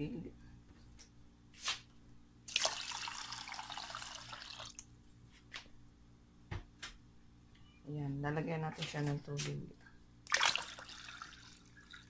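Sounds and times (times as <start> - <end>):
water pouring into a metal pot: 2.5 - 4.8, 10.3 - 12.0.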